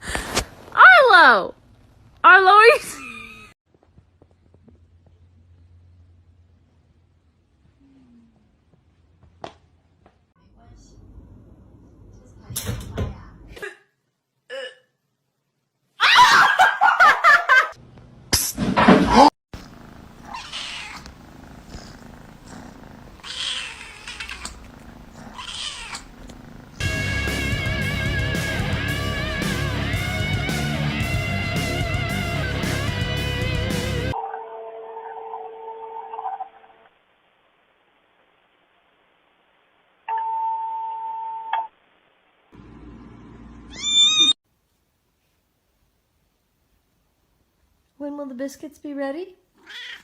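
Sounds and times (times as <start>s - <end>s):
cat crying: 20.2s - 21.1s, 23.2s - 24.6s, 25.2s - 26.2s, 43.7s - 44.4s, 49.6s - 50.0s
music: 26.8s - 34.2s.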